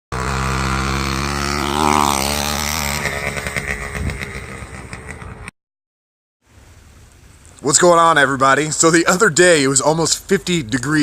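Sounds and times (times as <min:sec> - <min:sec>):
small two-stroke engine running: 0:00.1 - 0:05.5.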